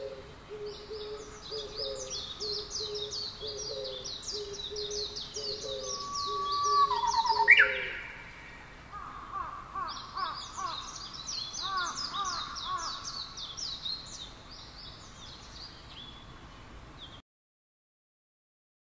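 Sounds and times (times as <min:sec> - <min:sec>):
low repeated bird notes: 0:00.0 - 0:17.2
whistled bird note with sweeping call: 0:05.8 - 0:08.6.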